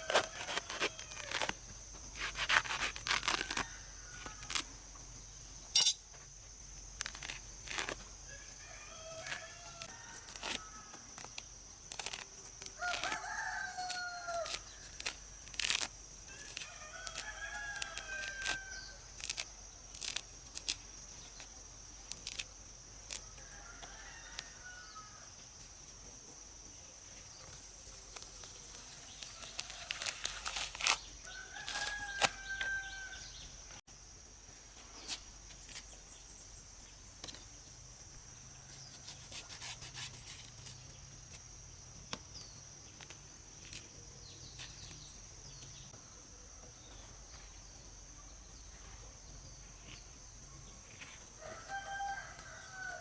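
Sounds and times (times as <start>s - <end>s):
rooster crowing: 8.3s - 11.0s, 12.8s - 14.6s, 23.2s - 25.3s, 31.3s - 33.4s, 51.4s - 53.0s.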